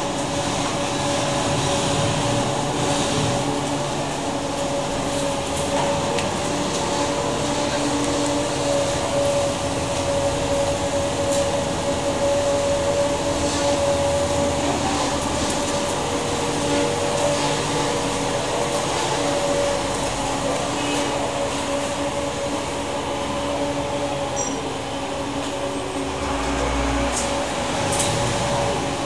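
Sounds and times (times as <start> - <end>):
machine hum with held tone: 0.0 - 29.0.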